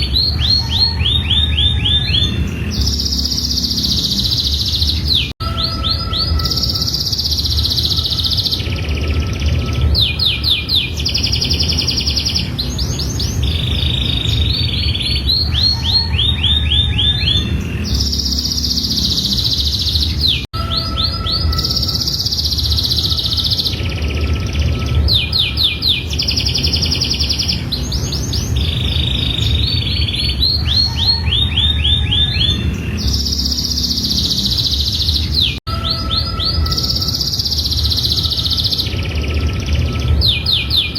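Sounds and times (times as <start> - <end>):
steady low hum: 0.0 - 5.4, 6.2 - 20.5
canary singing trills: 0.0 - 40.9.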